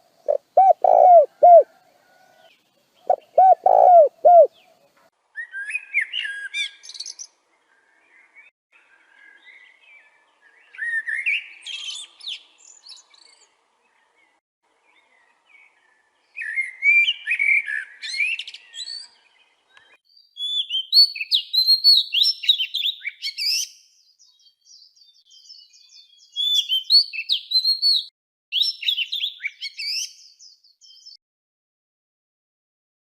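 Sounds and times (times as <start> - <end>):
songbird chirping: 0.0 - 31.2.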